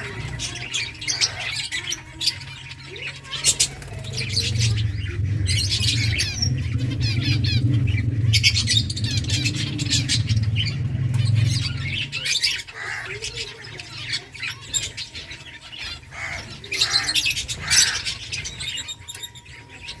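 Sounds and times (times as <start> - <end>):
finches chirping: 0.0 - 20.0
low hum: 2.4 - 13.2.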